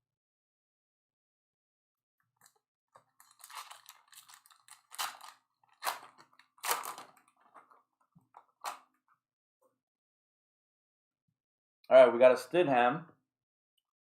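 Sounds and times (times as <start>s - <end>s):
wrapper crinkling and tearing: 3.0s - 7.8s.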